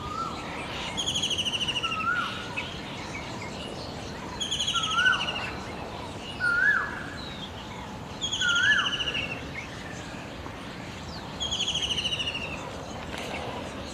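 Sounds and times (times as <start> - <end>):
steady background hiss: 0.0 - 13.9.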